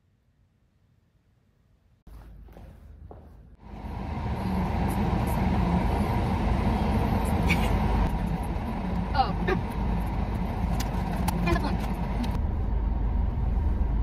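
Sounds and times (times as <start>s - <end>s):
car engine starting and running: 3.5s - 14.0s.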